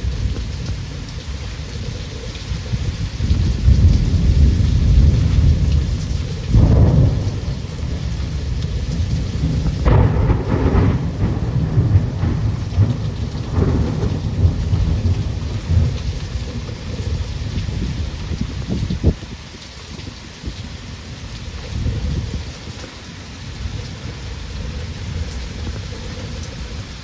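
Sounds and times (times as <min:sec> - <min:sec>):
thunder rumbling: 0:00.0 - 0:19.5
heavy rain: 0:00.0 - 0:27.0.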